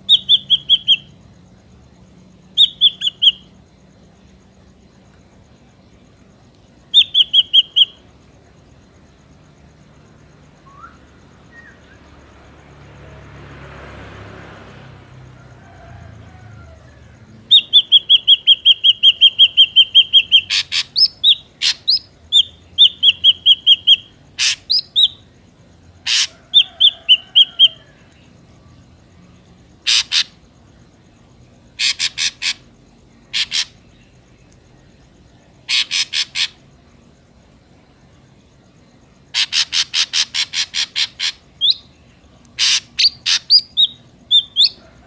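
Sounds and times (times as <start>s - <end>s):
bird whistling and rasping calls: 0.0s - 1.1s, 2.6s - 3.5s, 7.0s - 8.0s, 10.7s - 12.0s, 17.5s - 25.2s, 26.1s - 27.8s, 29.8s - 30.4s, 31.8s - 32.7s, 33.3s - 33.8s, 35.7s - 36.6s, 39.3s - 41.9s, 42.6s - 44.8s.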